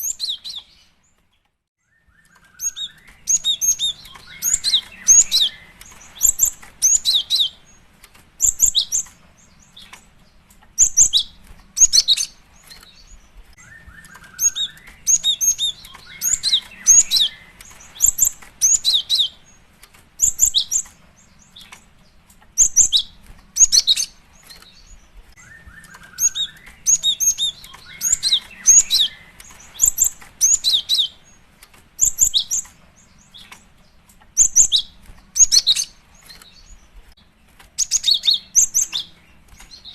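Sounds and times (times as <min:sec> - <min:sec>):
scratchy downward bird call: 0:25.4 - 0:31.2.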